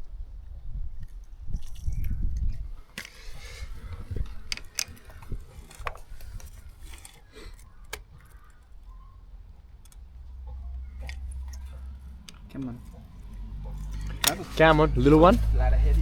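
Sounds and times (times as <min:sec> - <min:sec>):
low rumbling handling noise: 0:01.4 - 0:16.0
metallic clicks of hand tools: 0:13.7 - 0:14.5.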